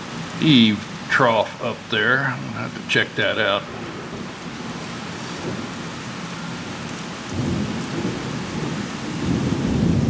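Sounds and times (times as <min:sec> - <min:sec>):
rain falling: 0:00.0 - 0:10.0
rolling thunder: 0:03.7 - 0:10.0.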